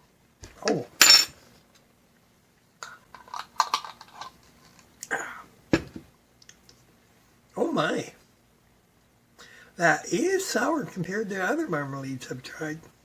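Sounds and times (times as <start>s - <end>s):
lip-smacking and mouth clicks: 6.4s - 6.8s.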